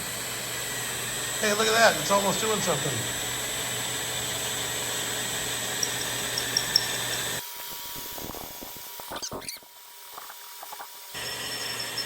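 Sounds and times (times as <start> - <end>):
electric drill boring into metal: 0.0 - 8.6, 11.2 - 12.0.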